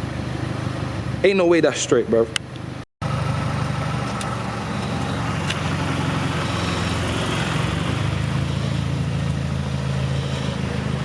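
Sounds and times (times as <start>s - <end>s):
car engine idling: 2.3s - 11.0s.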